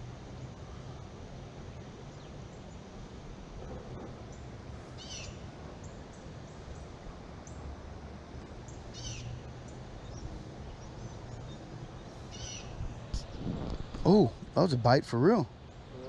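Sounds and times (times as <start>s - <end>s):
bird giving harsh calls: 5.0s - 5.4s, 12.3s - 12.8s.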